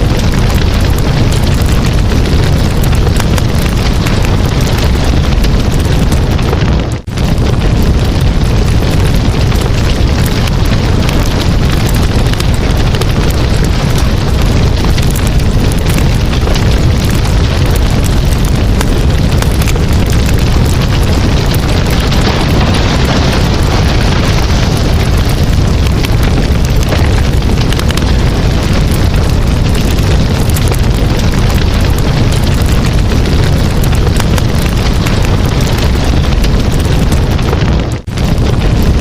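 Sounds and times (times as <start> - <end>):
campfire crackling and popping: 0.0 - 39.0
low fire rumble: 0.0 - 39.0.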